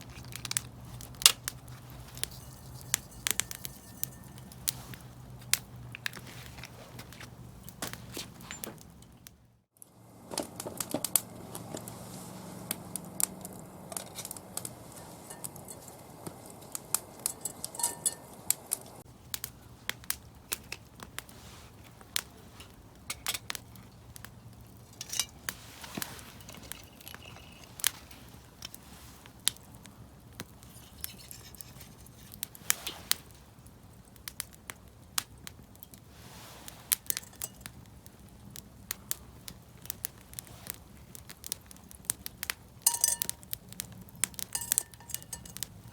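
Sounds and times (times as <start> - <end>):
wood fire crackling and popping: 0.0 - 45.9.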